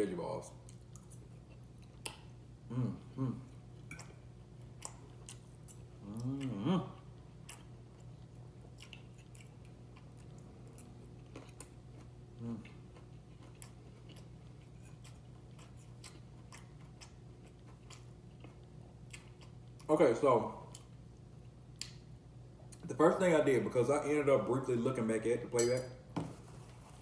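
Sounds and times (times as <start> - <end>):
person chewing food: 0.6 - 19.9
person humming mm: 2.7 - 3.6, 6.0 - 7.0, 12.4 - 12.7.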